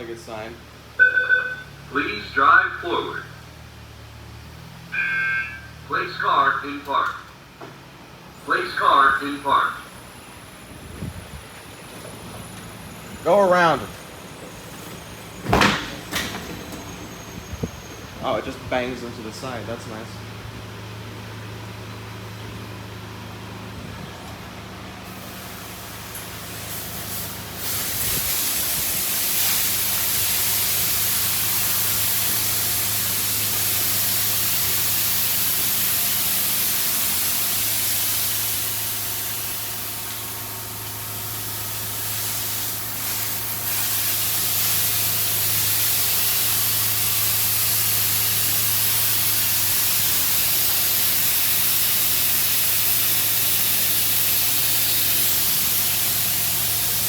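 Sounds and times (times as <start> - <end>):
water spray hissing: 25.1 - 40.0, 41.1 - 57.0.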